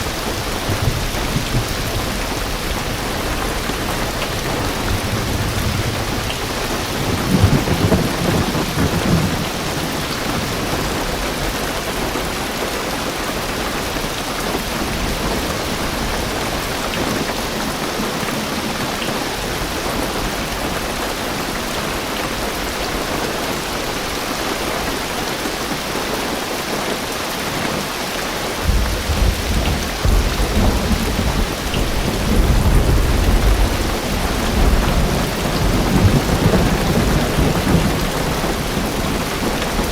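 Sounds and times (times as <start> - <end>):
thunder rumbling: 0.0 - 11.6, 28.6 - 39.9
heavy rain drumming on car roof: 0.0 - 39.9.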